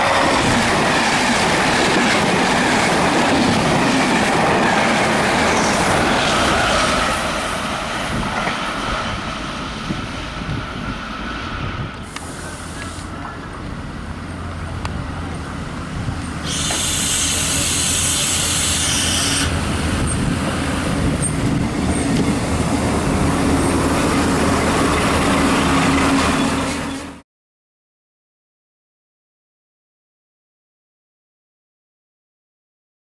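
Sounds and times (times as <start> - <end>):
diesel train engine droning: 0.0 - 27.2
wheels on rail: 0.0 - 27.2
loud high hiss: 11.3 - 13.6, 16.3 - 20.0.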